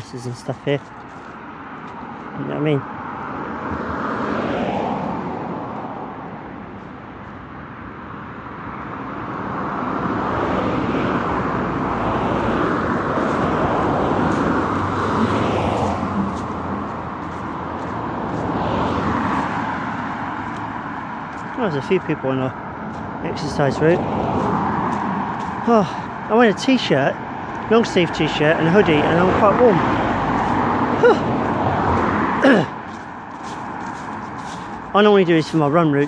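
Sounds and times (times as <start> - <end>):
cars passing close by: 0.0 - 36.0.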